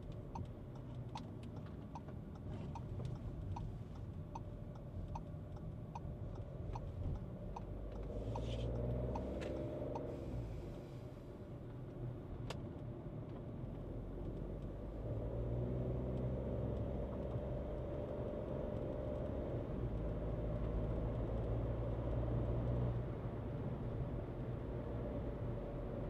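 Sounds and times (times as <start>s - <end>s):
car engine droning: 0.0s - 11.6s
road noise: 0.0s - 26.0s.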